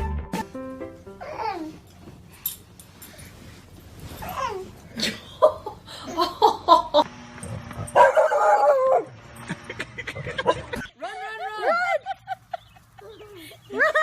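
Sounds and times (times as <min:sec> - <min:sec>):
dog barking and yipping: 0:07.9 - 0:09.2.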